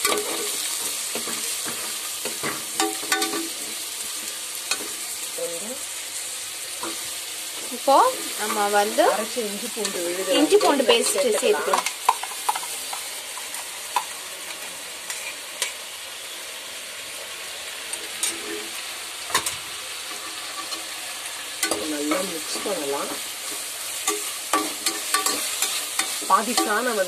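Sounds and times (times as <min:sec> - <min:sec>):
spatula scraping and knocking pan: 0:00.0 - 0:05.0, 0:08.1 - 0:14.1, 0:21.6 - 0:27.0
food sizzling in hot oil: 0:00.0 - 0:27.0.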